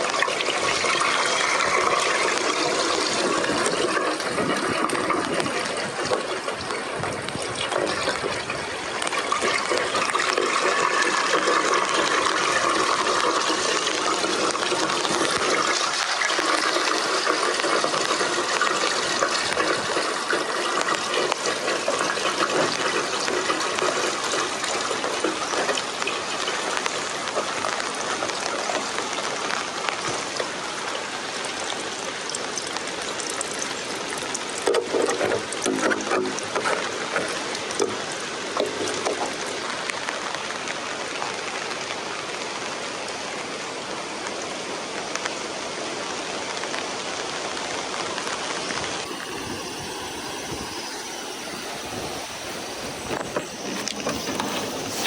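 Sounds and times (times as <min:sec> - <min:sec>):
water rushing: 0:00.0 - 0:33.1, 0:49.0 - 0:55.0.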